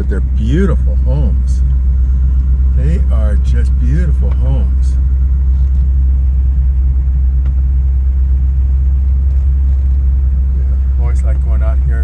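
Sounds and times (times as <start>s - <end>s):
car engine cruising: 0.0s - 12.0s.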